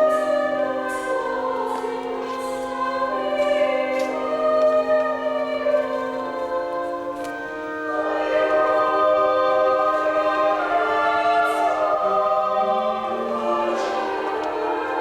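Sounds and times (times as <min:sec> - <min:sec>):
choir singing held chords: 0:00.0 - 0:15.0
pipe organ: 0:00.0 - 0:15.0.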